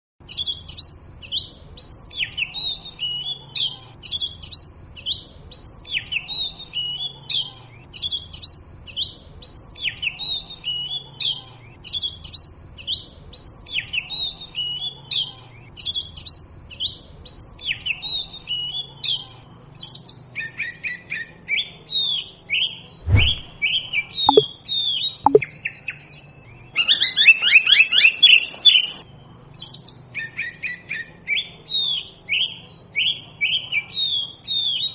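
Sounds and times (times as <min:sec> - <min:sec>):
bird singing whistles: 0:23.0 - 0:24.5.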